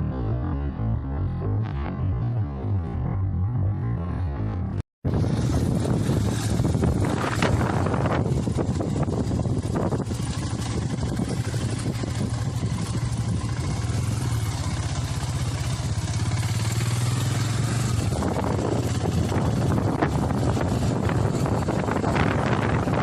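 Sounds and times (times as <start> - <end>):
motorcycle engine running: 0.0 - 23.0
wind buffeting microphone: 5.0 - 23.0.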